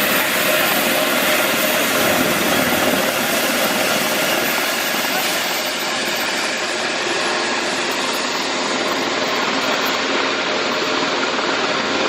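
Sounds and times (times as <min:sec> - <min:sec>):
helicopter turbine and rotor: 0:00.0 - 0:12.0.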